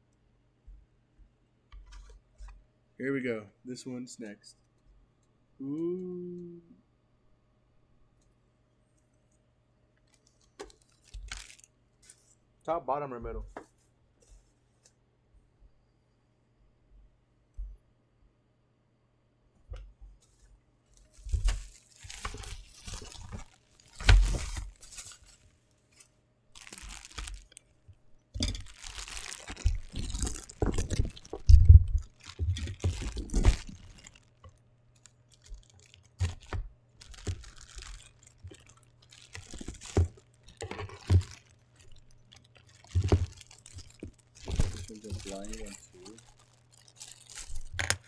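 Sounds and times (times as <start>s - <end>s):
packaging crinkling and tearing: 10.1s - 12.3s, 20.9s - 27.8s, 28.4s - 48.0s.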